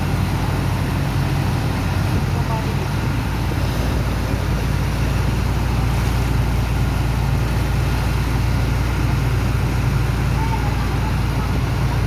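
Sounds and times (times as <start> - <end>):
pump engine droning: 0.0 - 12.0.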